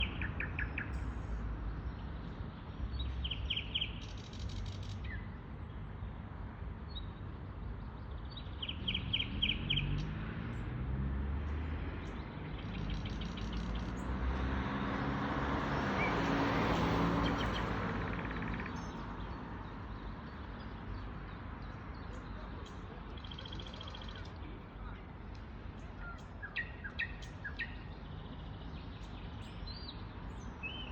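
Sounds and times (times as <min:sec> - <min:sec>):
nightingales singing: 0:25.8 - 0:30.9.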